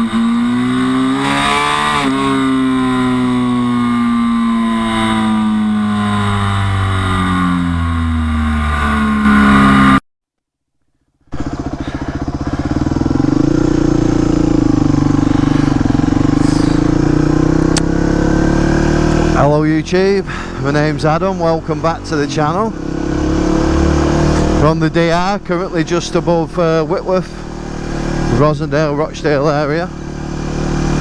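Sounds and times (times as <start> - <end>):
motorcycle engine running: 0.0 - 10.0, 11.2 - 31.0.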